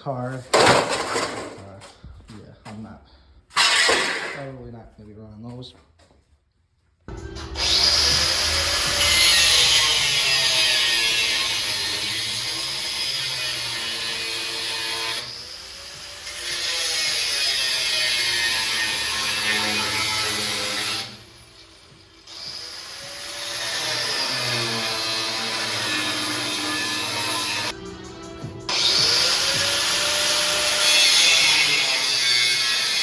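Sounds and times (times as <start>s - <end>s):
power tool running: 7.2s - 21.2s, 22.2s - 27.8s, 28.7s - 33.0s.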